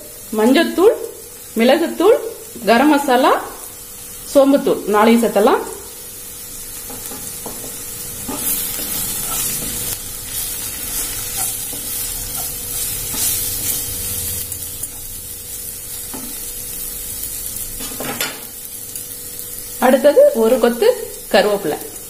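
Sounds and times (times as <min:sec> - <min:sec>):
masala sizzling in a pan: 0:00.0 - 0:22.0
wooden spatula stirring and scraping: 0:06.9 - 0:14.0.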